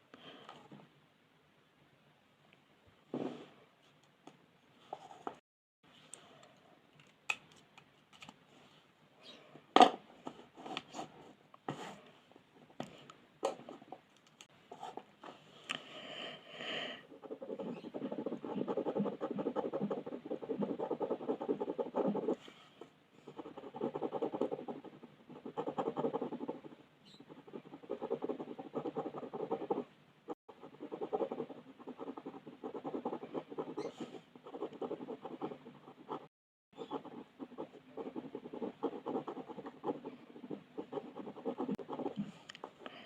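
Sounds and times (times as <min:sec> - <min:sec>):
colouring strokes scratching on paper: 0:17.2 - 0:22.4.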